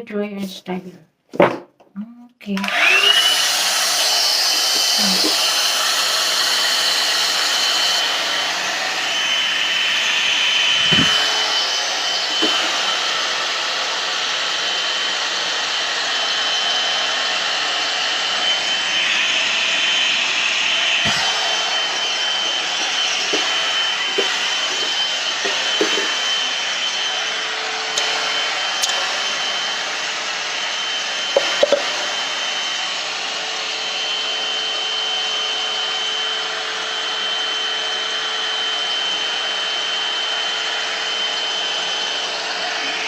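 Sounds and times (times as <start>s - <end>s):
hot-air brush whining: 2.6s - 43.0s.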